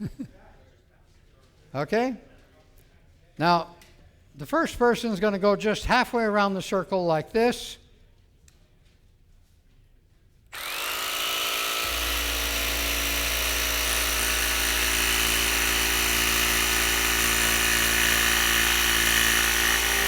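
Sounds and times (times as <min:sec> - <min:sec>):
jigsaw cutting wood: 0:10.5 - 0:20.0.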